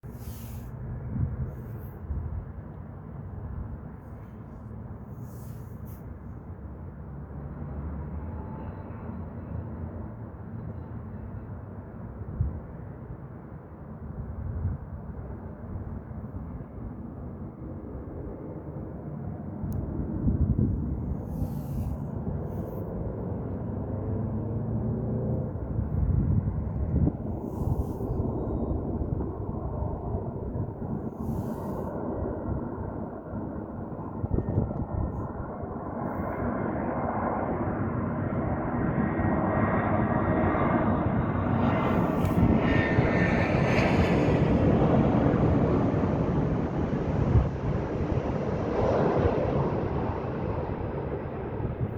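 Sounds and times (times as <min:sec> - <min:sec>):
jet engines rumbling: 0:16.5 - 0:51.9.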